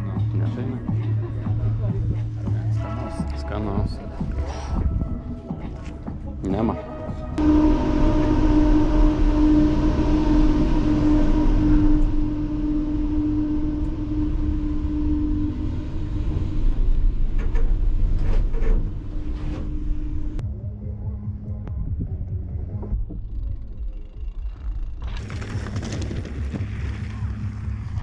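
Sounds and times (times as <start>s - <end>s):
vehicle engine running: 7.2s - 28.0s.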